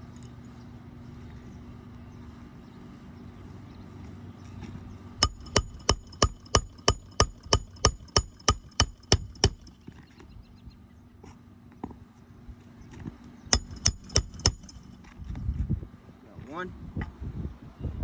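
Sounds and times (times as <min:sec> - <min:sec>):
hammer striking nails: 0:05.2 - 0:09.9, 0:13.6 - 0:15.1.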